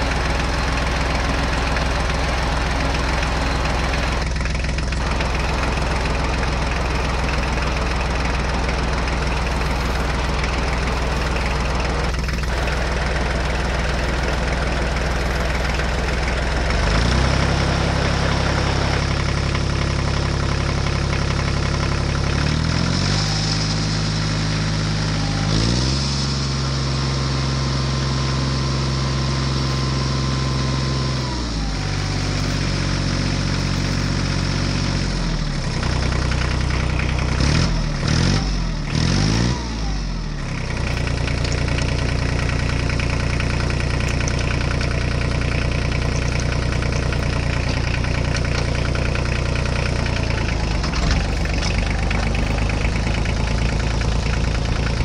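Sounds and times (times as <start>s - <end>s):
engine idling and revving: 0.0s - 55.0s.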